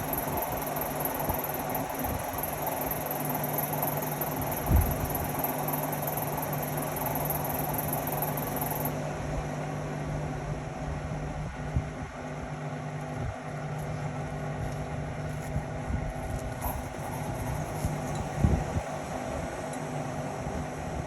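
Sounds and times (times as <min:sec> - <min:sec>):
washing machine motor hum: 0:00.0 - 0:13.6.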